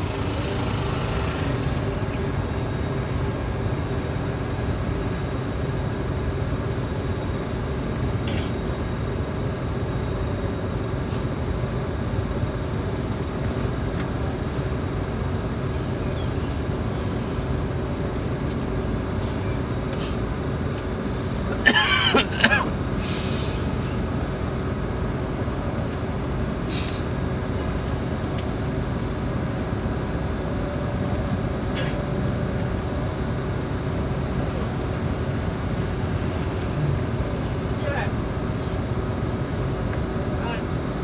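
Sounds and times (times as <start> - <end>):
coach engine and road drone: 0.0 - 41.0.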